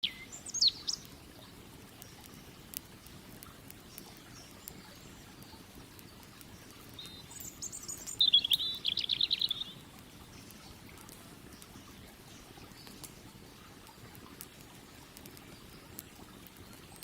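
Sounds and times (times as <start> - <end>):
songbird trill: 0.0 - 1.2, 6.8 - 9.8
campfire crackling: 0.0 - 17.0.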